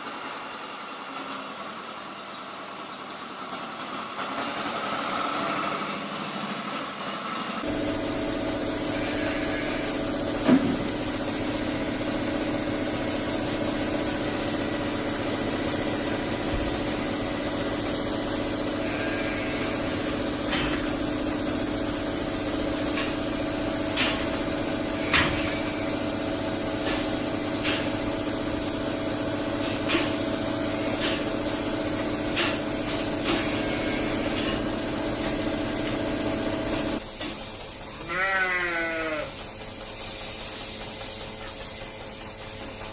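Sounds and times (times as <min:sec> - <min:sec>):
engine humming steadily: 0:00.0 - 0:42.9
sharp clicks and knocks: 0:32.3 - 0:33.5.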